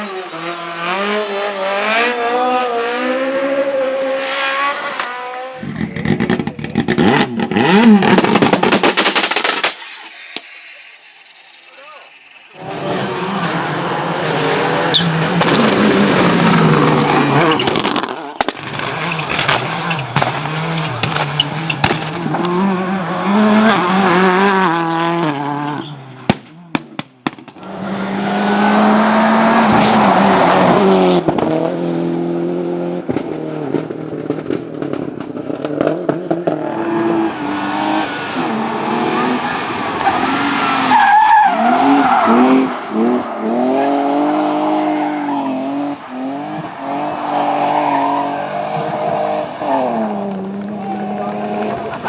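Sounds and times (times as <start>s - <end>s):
rally car engines revving: 0.0s - 52.0s
sharp cracks: 5.7s - 12.6s, 15.2s - 22.5s
tyre squeal: 9.5s - 22.0s, 25.7s - 26.1s, 37.0s - 48.8s.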